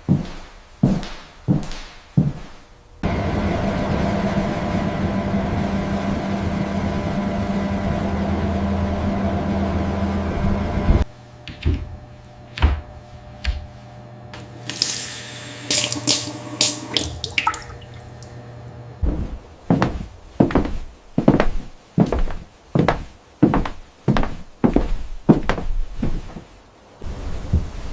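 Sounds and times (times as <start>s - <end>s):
low hum: 2.8s - 20.5s
rush like running water: 14.6s - 18.4s.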